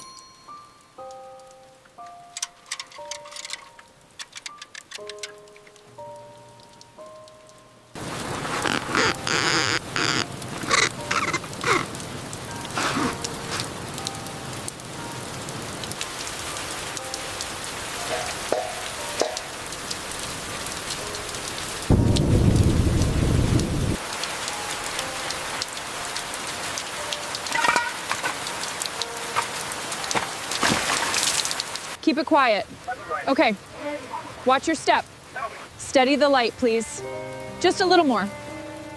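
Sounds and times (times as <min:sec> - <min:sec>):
rain falling: 0:00.0 - 0:38.9
sharp drips: 0:02.0 - 0:22.3, 0:24.0 - 0:32.6
thunder roll: 0:21.9 - 0:24.0.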